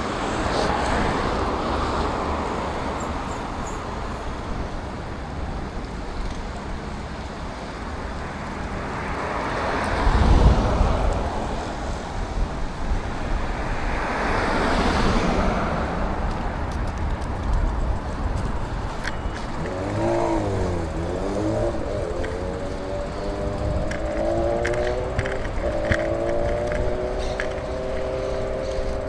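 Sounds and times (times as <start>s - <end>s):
city traffic passing: 0.0s - 29.0s
engine accelerating: 17.8s - 29.0s
engine revving: 18.0s - 29.0s.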